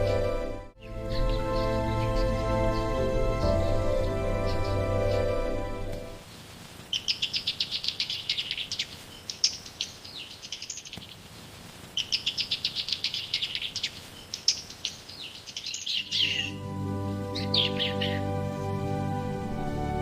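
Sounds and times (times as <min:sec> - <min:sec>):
small bird chirping: 0:00.8 - 0:03.0, 0:06.9 - 0:16.6, 0:17.3 - 0:18.3.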